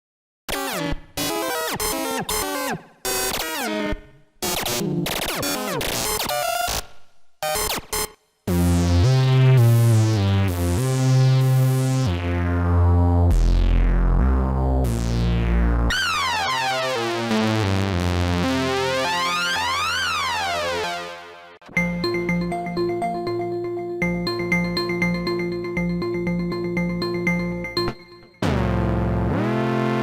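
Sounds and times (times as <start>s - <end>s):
synthesizer bass notes with filter sweeps: 8.5s - 30.0s
resonant synthesizer sweep: 21.7s - 28.4s.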